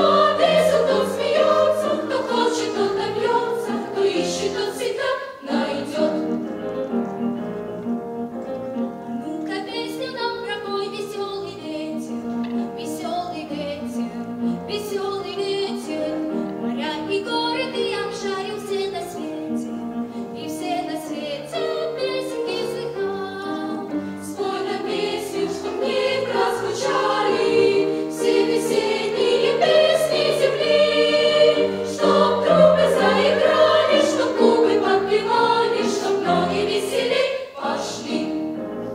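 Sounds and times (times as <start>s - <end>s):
instrumental accompaniment: 0.0s - 14.7s, 18.2s - 38.9s
girl singing: 9.4s - 12.1s.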